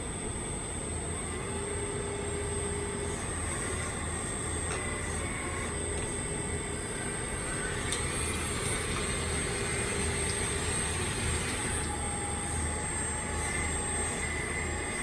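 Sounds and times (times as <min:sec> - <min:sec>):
model excavator whirring and whining: 0:00.0 - 0:15.0.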